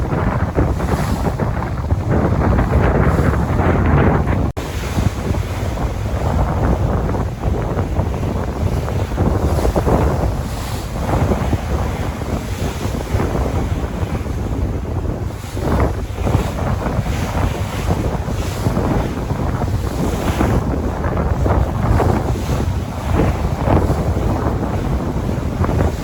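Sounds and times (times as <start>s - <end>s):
sea waves washing in: 0.0s - 26.0s
wind buffeting microphone: 0.0s - 26.0s.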